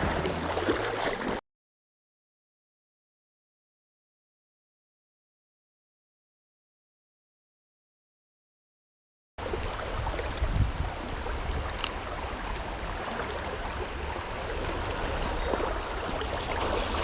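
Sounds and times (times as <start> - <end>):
stream water rushing: 0.0 - 1.4, 9.4 - 17.0.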